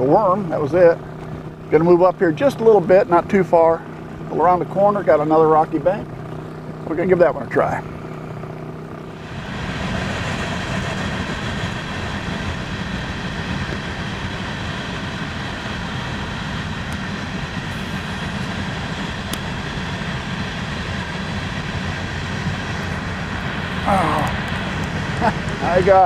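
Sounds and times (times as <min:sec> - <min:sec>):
train rumbling by: 0:09.2 - 0:26.0.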